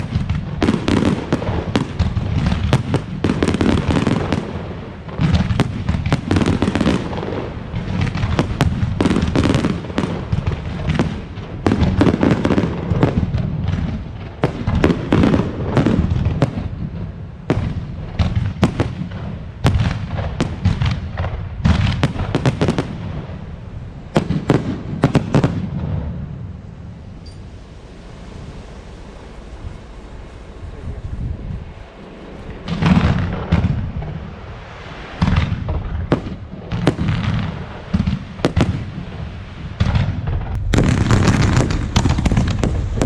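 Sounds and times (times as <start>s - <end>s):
fireworks bursting and banging: 0.0s - 43.0s
low rumble: 23.0s - 36.7s, 40.1s - 43.0s.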